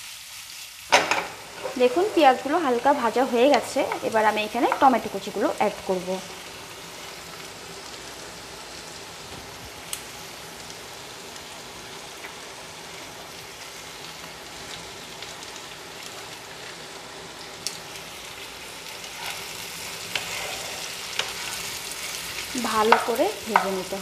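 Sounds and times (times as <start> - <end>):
onions sizzling in a frying pan: 0.0 - 24.0.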